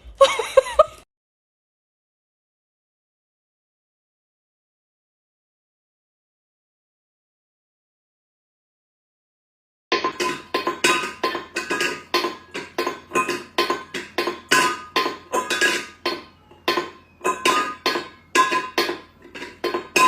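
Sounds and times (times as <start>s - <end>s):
sharp knocks on resonant object: 9.9s - 20.0s.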